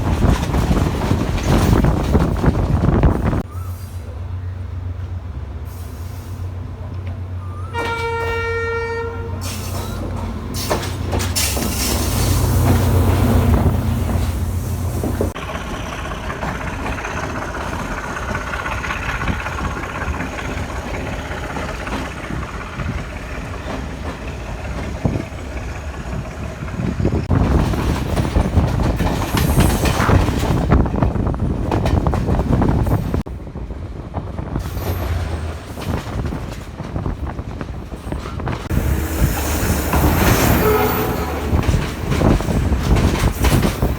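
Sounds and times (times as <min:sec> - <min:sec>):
train wheels clattering on rails: 0:00.0 - 0:03.5, 0:06.8 - 0:43.9
train horn: 0:07.6 - 0:09.4, 0:38.7 - 0:42.2
deep engine rumble: 0:38.4 - 0:43.9.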